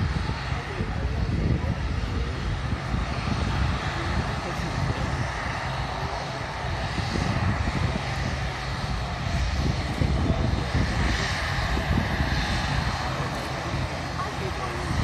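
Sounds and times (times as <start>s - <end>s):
airliner engine roar: 0.0s - 15.0s.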